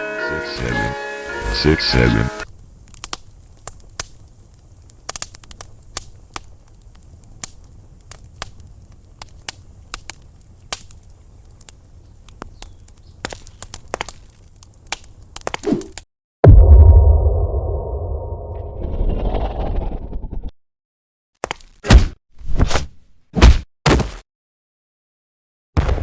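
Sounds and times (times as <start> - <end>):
sharp clicks and cracks: 2.8 - 16.0.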